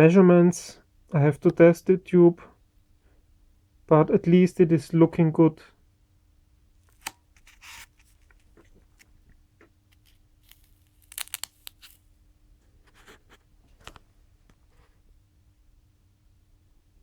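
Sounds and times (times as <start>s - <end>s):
faint steady hum: 0.0s - 17.0s
small objects clicking and rustling: 9.9s - 12.0s.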